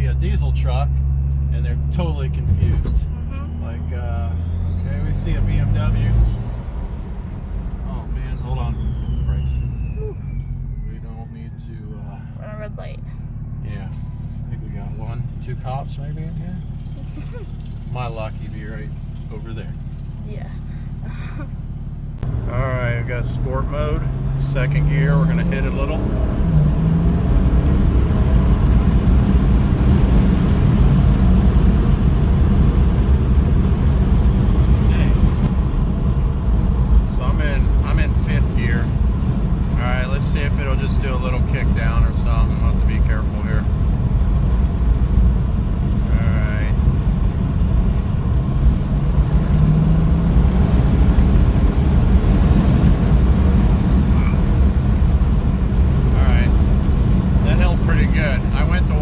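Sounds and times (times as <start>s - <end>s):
diesel engine drone under acceleration: 0.0s - 59.0s
high turbo whistle: 2.4s - 11.8s.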